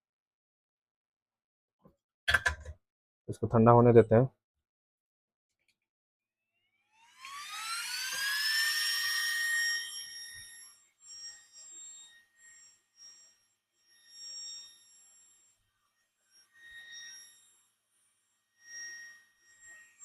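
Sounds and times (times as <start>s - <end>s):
blower motor whining: 7.0s - 10.6s.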